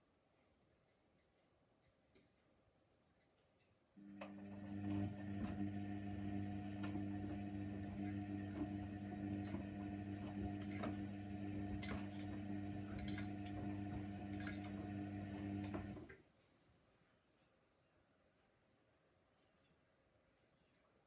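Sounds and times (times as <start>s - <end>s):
washing machine motor hum: 4.0s - 16.2s
washing machine clicks: 4.1s - 16.1s.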